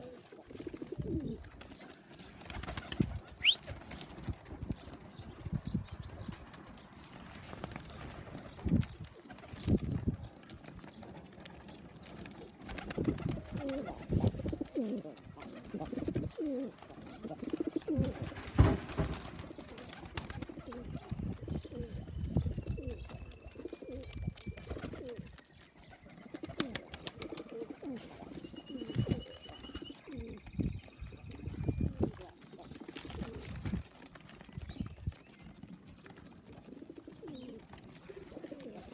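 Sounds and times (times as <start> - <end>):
pigeons cooing: 0.0 - 4.0, 10.2 - 33.8, 35.5 - 38.9.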